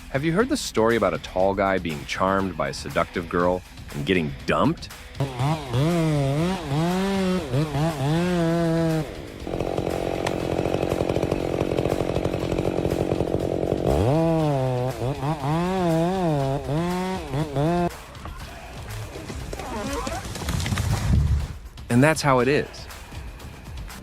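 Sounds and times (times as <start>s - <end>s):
chainsaw revving: 5.2s - 17.9s.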